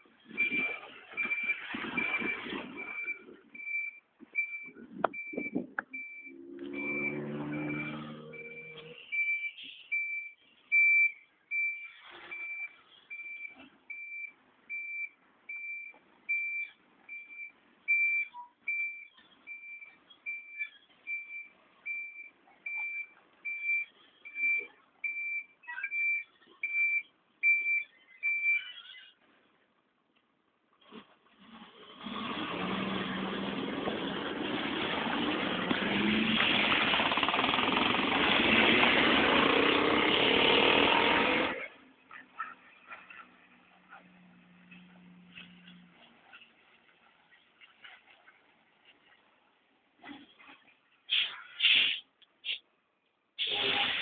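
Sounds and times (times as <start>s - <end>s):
truck reversing alarm beeping: 0.3s - 29.1s.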